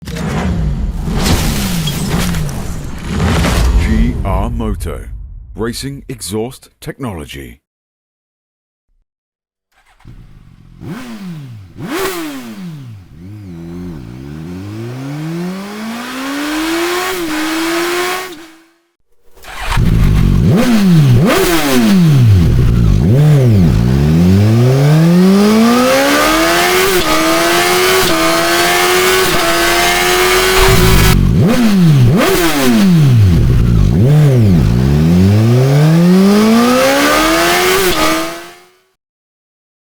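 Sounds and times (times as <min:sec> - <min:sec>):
motorcycle engine revving: 0:09.7 - 0:38.9.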